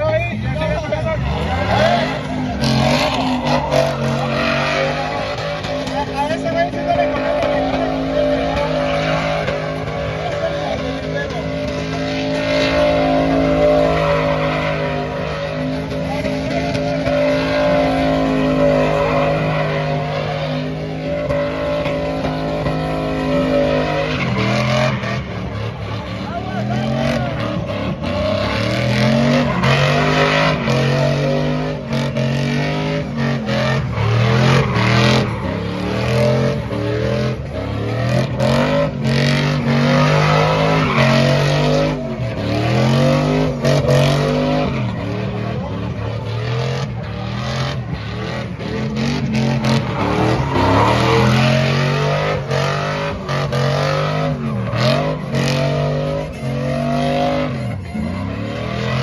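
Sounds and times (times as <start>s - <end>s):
tires squealing: 0.0s - 59.0s
truck engine revving: 0.0s - 59.0s.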